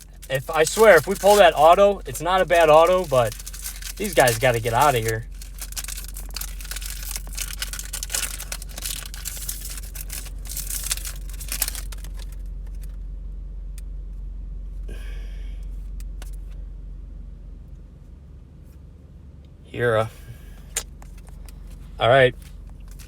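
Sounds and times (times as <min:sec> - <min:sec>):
cards rustling: 0:00.0 - 0:13.0, 0:22.4 - 0:23.0
foil pack tearing and crinkling: 0:00.0 - 0:13.0
car hum: 0:00.0 - 0:23.0.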